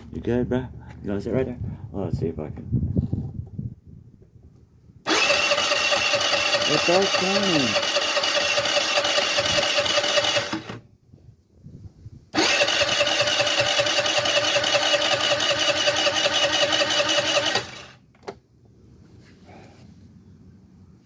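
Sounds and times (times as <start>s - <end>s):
moped electric starter whirring: 5.0s - 10.9s, 12.4s - 18.4s.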